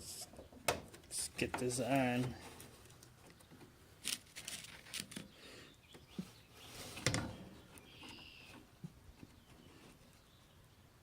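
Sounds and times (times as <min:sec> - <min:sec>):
faint high chirp: 0:05.8 - 0:08.6.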